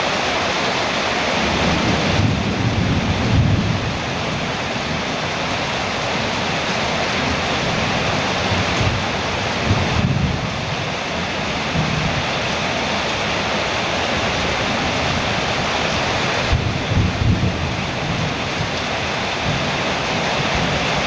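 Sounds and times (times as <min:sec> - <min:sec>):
heavy rain on a metal roof: 0:00.0 - 0:21.0.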